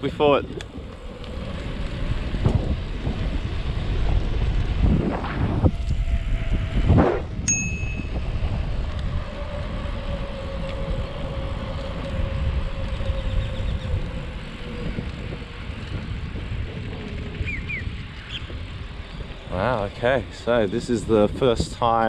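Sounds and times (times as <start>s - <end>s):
faint hum falling in pitch: 0.0s - 17.8s
bicycle tyre noise: 0.0s - 22.0s
wind on microphone: 0.0s - 22.0s
brief high ring: 7.5s - 8.3s.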